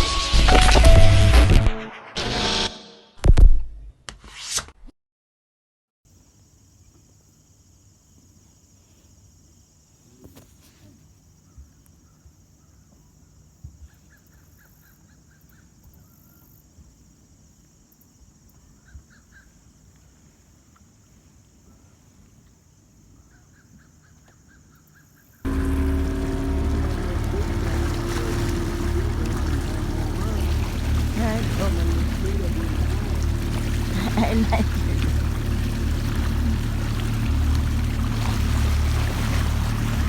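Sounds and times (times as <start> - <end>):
outdoor background hiss: 6.1 - 18.8.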